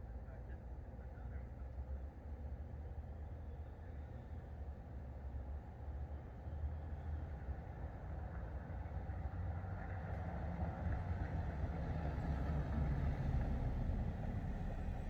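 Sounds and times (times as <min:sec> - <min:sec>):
low steady rumble: 0:13.5 - 0:15.0.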